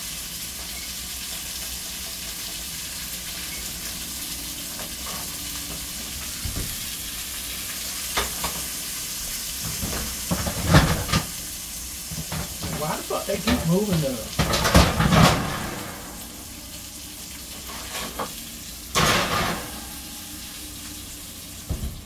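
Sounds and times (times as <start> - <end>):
liver sizzling in a skillet: 0.0 - 21.8.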